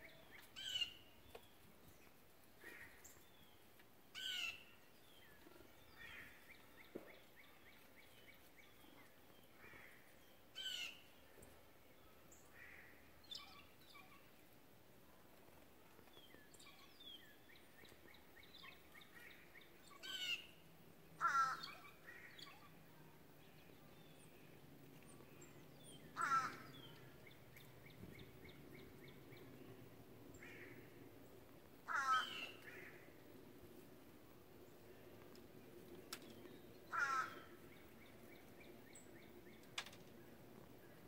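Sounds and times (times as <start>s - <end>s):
small birds chirping and trilling: 16.0s - 33.0s
harsh bird calls: 21.2s - 22.8s, 26.0s - 27.2s, 31.8s - 33.0s, 36.8s - 38.2s.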